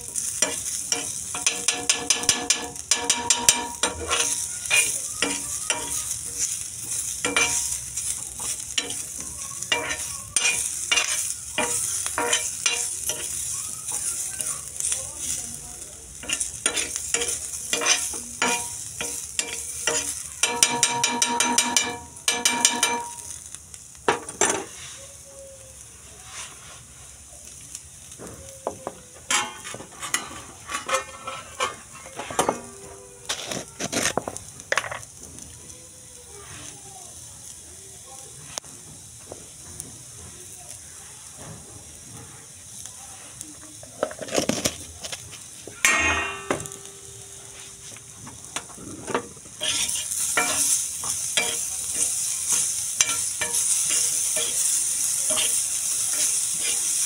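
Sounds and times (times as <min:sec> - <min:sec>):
vegetables sizzling in oil: 0:00.0 - 0:57.0
spatula scraping and clicking: 0:00.3 - 0:14.3, 0:16.2 - 0:21.9, 0:48.6 - 0:54.6, 0:55.3 - 0:56.8.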